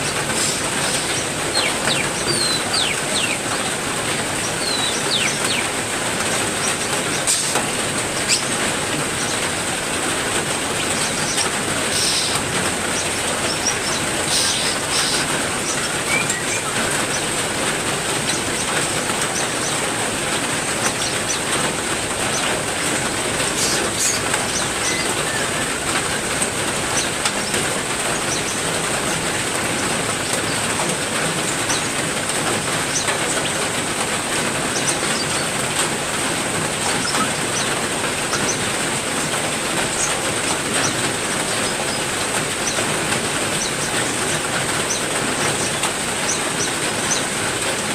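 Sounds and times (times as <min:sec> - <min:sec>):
heavy rain falling: 0:00.0 - 0:47.9
high bird chirps: 0:00.9 - 0:03.4, 0:04.4 - 0:05.7, 0:23.6 - 0:25.6.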